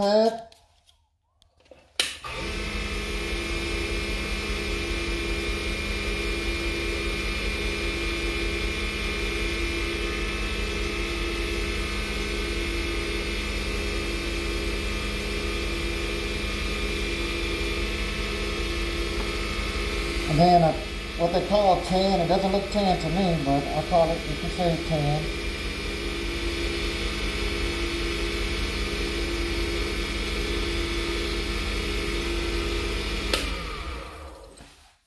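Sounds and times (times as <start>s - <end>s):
lathe motor humming: 2.3s - 34.6s
lathe switch click: 33.3s - 33.6s.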